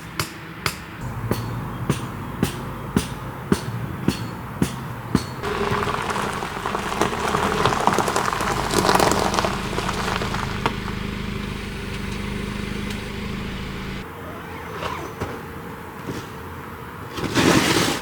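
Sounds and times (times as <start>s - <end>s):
motor humming: 5.4s - 14.0s.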